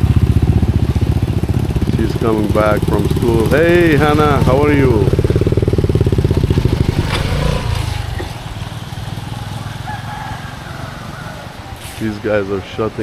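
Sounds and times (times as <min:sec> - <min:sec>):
small engine running and shutting off: 0:03.0 - 0:08.4.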